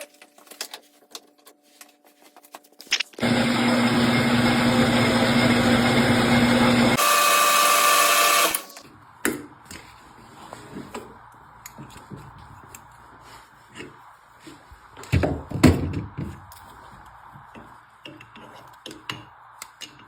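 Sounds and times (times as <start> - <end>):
metal lathe motor hum: 3.2 - 8.8.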